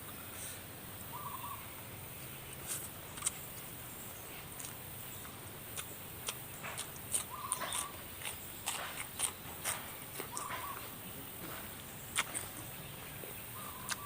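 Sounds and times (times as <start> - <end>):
wet chewing and biting: 2.7 - 3.7, 4.4 - 13.0, 13.6 - 14.0.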